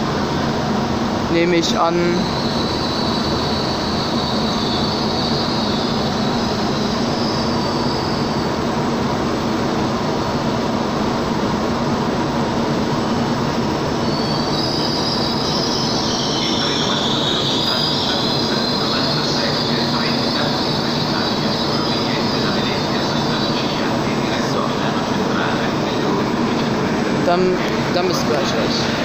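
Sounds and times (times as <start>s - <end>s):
train rumbling past: 0.0s - 29.0s
high wheel squeal: 1.6s - 8.7s, 13.0s - 29.0s.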